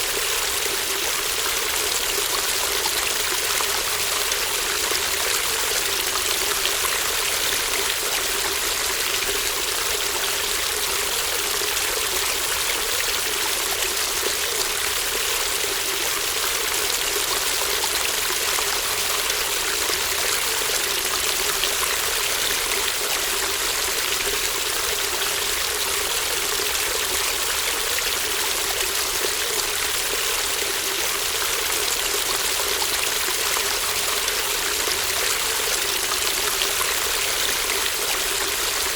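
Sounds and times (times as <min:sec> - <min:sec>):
brook babbling over stones: 0:00.0 - 0:38.9.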